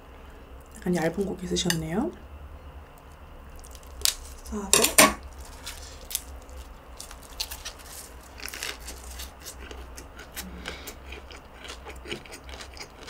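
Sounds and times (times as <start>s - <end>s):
low steady hum: 0.0s - 13.0s
crunchy chewing: 2.9s - 4.6s, 5.2s - 13.0s.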